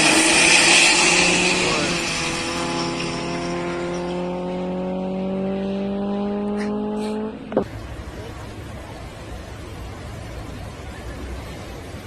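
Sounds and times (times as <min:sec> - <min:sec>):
car engine at high revs: 0:00.0 - 0:09.0.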